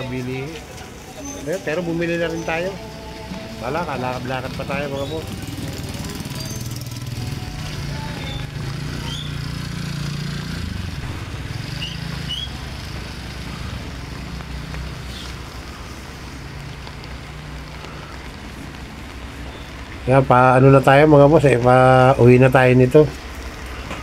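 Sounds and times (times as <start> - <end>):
wet street noise: 0.0 - 24.0
faint high squeaks: 1.1 - 1.7
small motorcycle engine running: 3.7 - 18.7.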